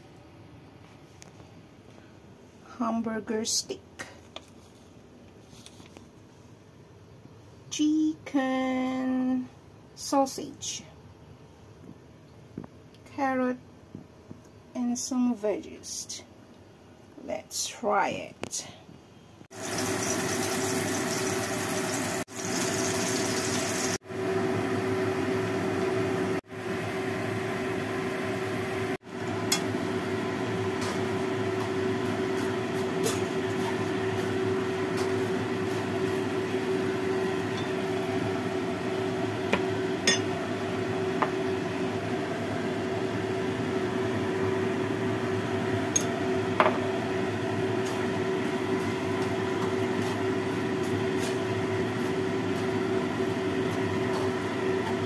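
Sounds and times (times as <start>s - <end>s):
food sizzling in a wok: 19.5s - 25.4s.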